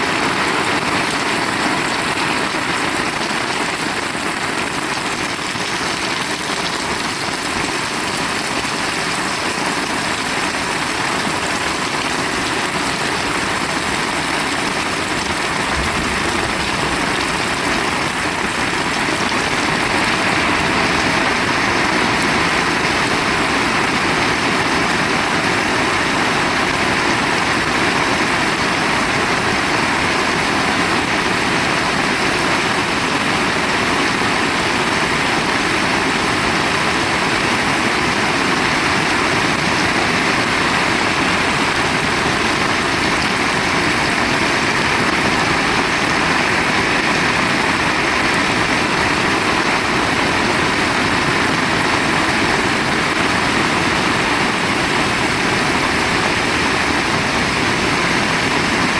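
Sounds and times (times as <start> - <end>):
heavy rain falling: 0.0 - 58.9.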